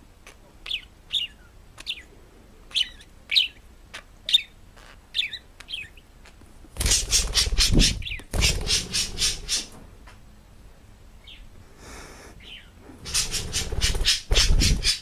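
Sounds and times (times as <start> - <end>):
parrot chirping: 0.2 - 2.1, 2.7 - 9.7, 12.5 - 15.0
parrot harsh rapid pulses: 6.8 - 9.7, 13.0 - 15.0.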